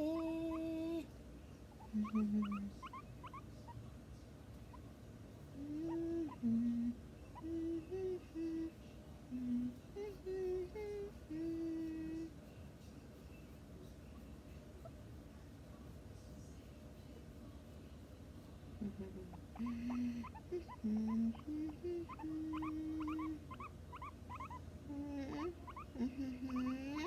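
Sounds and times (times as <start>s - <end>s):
person humming: 0.0s - 1.1s, 1.8s - 3.0s, 5.6s - 12.3s, 18.8s - 27.0s.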